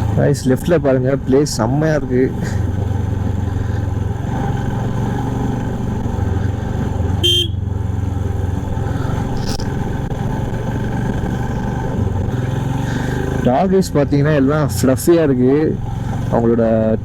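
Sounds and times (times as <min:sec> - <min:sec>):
motorcycle engine running: 0:00.0 - 0:17.0
horn toot: 0:07.2 - 0:07.6.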